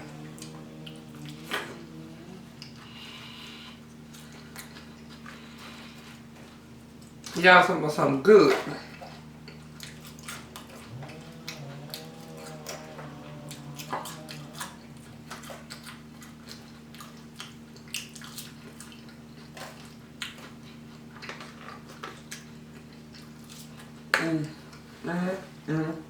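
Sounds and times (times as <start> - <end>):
person humming mmm: 0.0 - 3.8, 10.9 - 15.0
wet chewing and mouth clicks: 0.0 - 7.4, 8.5 - 24.8
steady low hum: 0.0 - 7.6, 8.8 - 17.5.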